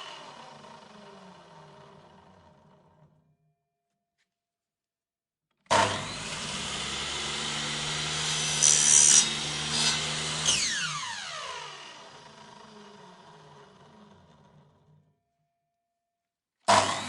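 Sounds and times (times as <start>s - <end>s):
buzz saw cutting: 5.7s - 12.8s, 16.7s - 17.0s
buzz saw whining: 5.7s - 12.9s, 16.7s - 17.0s.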